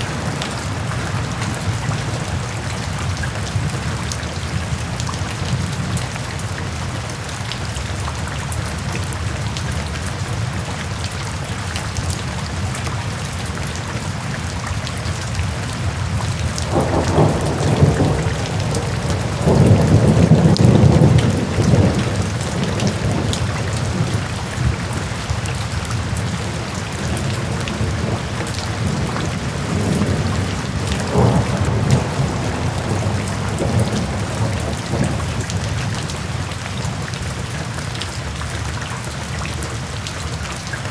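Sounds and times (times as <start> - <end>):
rain falling: 0.0 - 40.9
thunder rumbling: 15.9 - 36.5.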